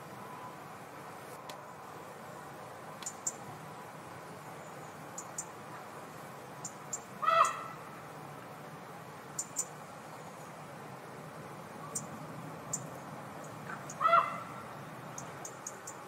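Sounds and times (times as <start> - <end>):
sharp high ticks: 3.0 - 3.4
pitched bird call: 6.9 - 7.8, 13.7 - 14.6.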